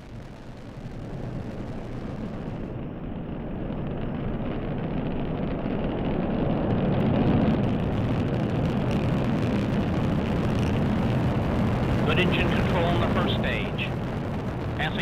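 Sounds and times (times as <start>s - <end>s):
rocket launch roar: 0.0s - 15.0s.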